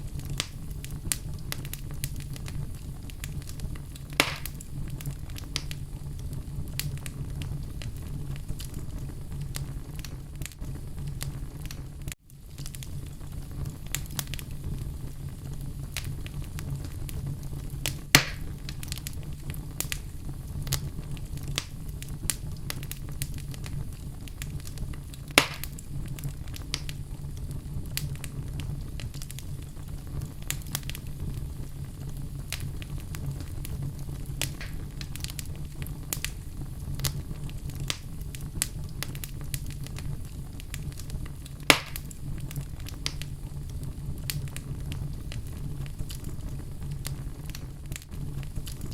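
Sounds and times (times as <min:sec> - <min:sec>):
fire burning in fireplace: 0:00.0 - 0:48.9
fire crackles: 0:00.0 - 0:48.9
sharp loud fire pops: 0:04.1 - 0:04.6, 0:18.1 - 0:18.6, 0:25.3 - 0:25.8, 0:34.4 - 0:35.3, 0:41.6 - 0:42.2.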